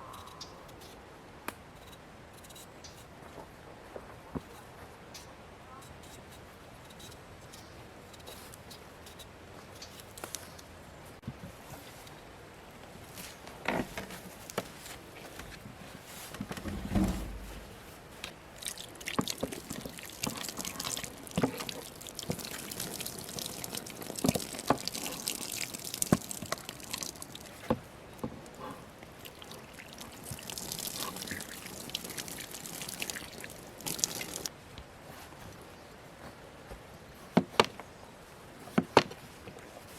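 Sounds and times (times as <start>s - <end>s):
water drips and splashes: 18.5s - 34.5s
water trickling: 18.5s - 34.5s.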